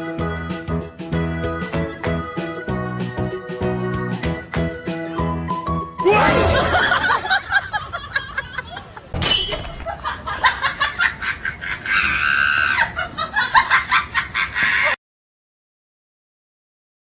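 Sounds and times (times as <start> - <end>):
people laughing and shrieking: 6.0 - 9.0, 9.8 - 15.0.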